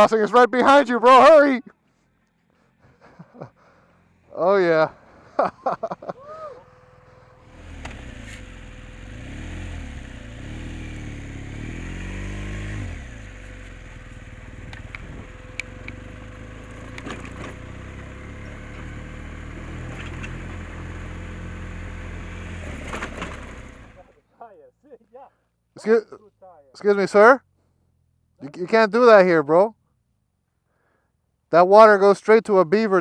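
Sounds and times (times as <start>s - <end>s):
motorcycle engine revving through gears: 6.7s - 24.2s.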